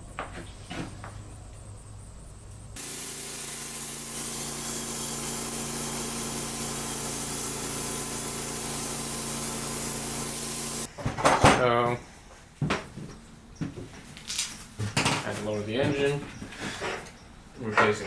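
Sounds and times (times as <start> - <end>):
bandsaw sawmill running: 2.8 - 10.9.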